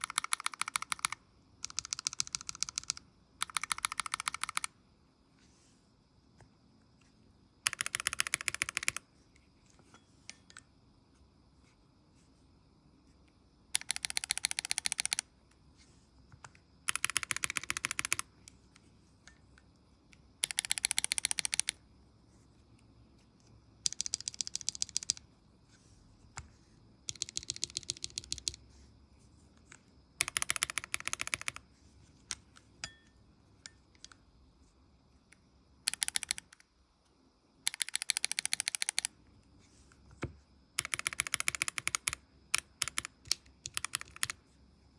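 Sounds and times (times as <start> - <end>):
mechanical keyboard clicking: 0.0 - 4.7, 7.6 - 9.0, 13.7 - 15.3, 16.9 - 18.3, 20.4 - 21.8, 23.8 - 25.2, 27.1 - 28.6, 30.2 - 31.6, 35.8 - 36.6, 37.6 - 39.1, 40.8 - 44.4.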